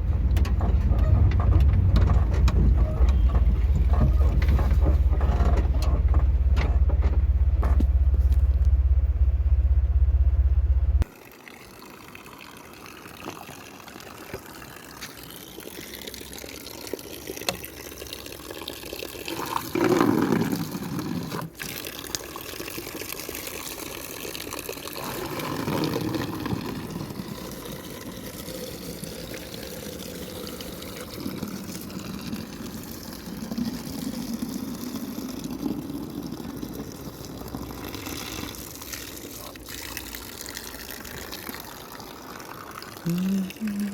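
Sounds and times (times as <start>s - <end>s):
loud low rumble: 4.8s - 11.0s
running water rushing: 11.0s - 43.9s.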